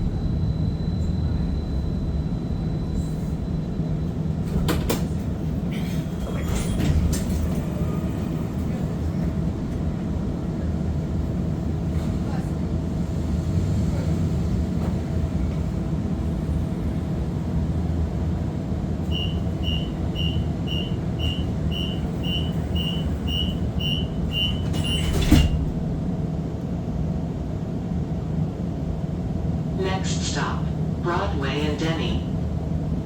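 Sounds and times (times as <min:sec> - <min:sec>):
streetcar drive hum: 0:00.0 - 0:33.0
high door warning beeps: 0:19.0 - 0:25.6.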